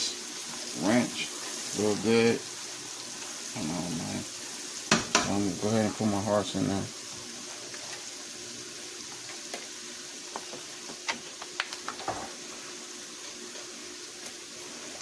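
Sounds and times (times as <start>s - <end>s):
onions sizzling in a pan: 0.0s - 15.0s
sharp clicks and taps: 11.1s - 12.0s.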